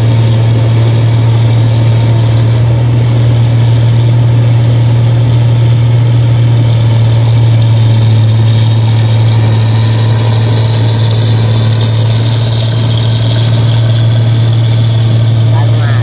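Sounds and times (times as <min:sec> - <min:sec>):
harvester engine droning: 0:00.0 - 0:16.0.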